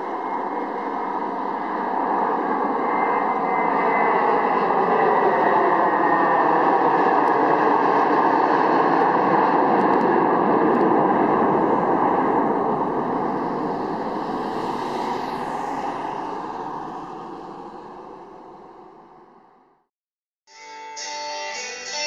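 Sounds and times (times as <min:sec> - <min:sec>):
jet engine roar: 0:00.0 - 0:19.8.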